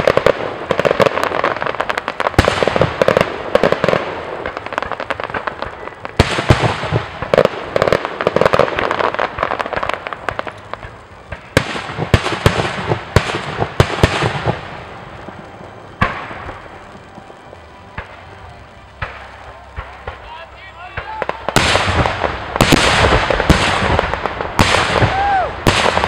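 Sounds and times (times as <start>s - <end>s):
fireworks bursting and crackling: 0.0s - 26.0s
sharp firework bang: 21.0s - 26.0s.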